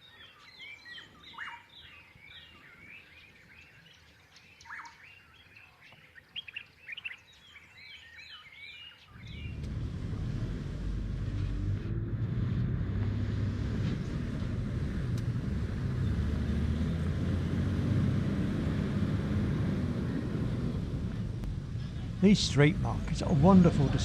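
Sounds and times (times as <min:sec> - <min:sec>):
vehicle engine and road rumble: 0:09.0 - 0:24.0.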